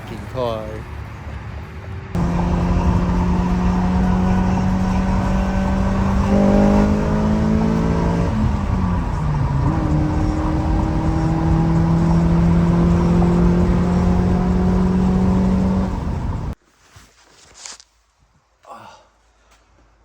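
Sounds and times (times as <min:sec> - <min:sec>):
car engine under load: 0:02.2 - 0:16.6.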